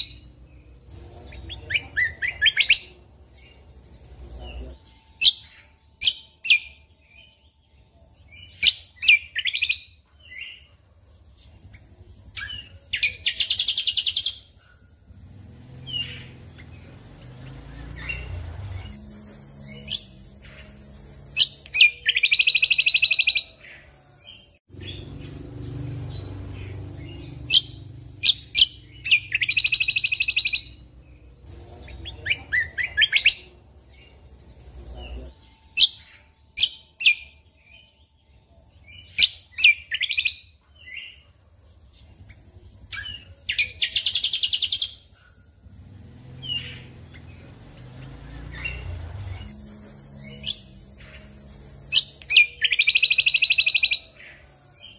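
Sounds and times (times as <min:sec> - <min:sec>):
songbird singing: 0:00.0 - 0:54.9
bird buzzing trills: 0:11.4 - 0:40.2, 0:42.0 - 0:54.9.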